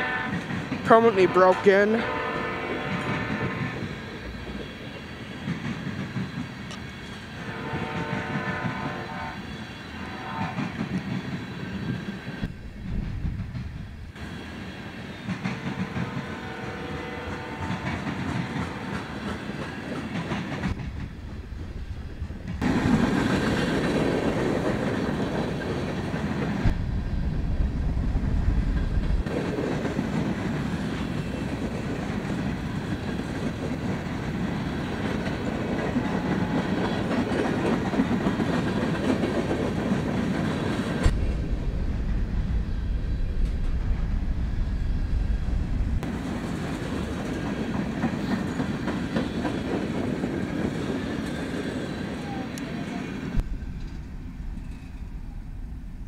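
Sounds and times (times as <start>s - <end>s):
multi-note train horn: 0.0s - 4.0s, 7.4s - 10.8s, 15.6s - 19.2s
train wheels clacking over rail joints: 15.1s - 21.3s, 28.8s - 41.4s, 46.0s - 52.2s.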